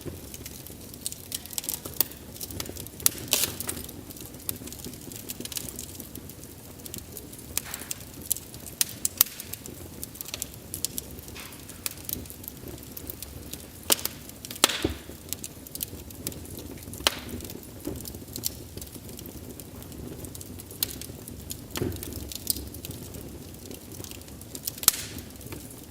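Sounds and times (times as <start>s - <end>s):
low burning hiss: 0.0s - 25.9s
wood fire crackling and popping: 0.0s - 25.9s.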